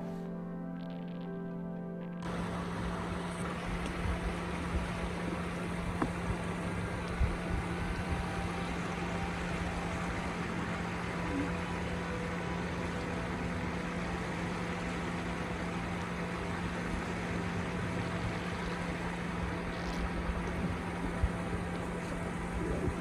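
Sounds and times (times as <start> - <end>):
constant low hum: 0.0 - 23.0.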